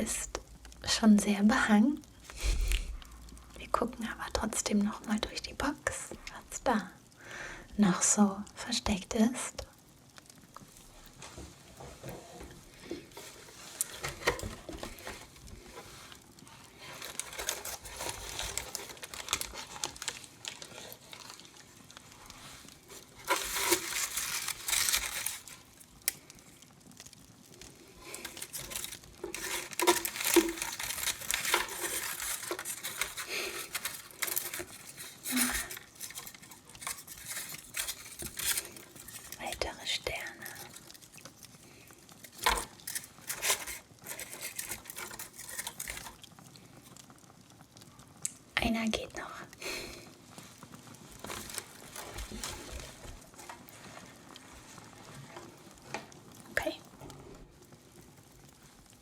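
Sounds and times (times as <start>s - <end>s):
packaging crinkling and rustling: 9.7s - 48.5s, 49.2s - 59.0s.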